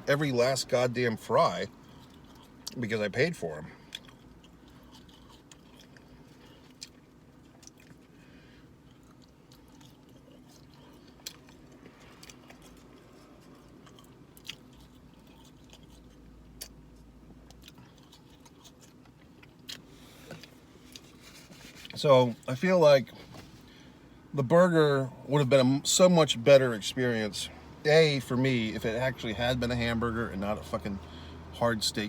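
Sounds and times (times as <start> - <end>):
faint steady hum: 0.0 - 32.0
man chewing fries: 0.7 - 23.7.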